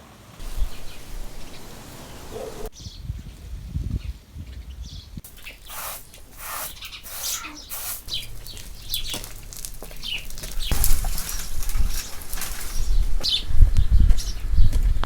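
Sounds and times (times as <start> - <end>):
birds chirping: 0.4 - 3.4, 4.0 - 15.0
swishing noises: 5.3 - 8.4.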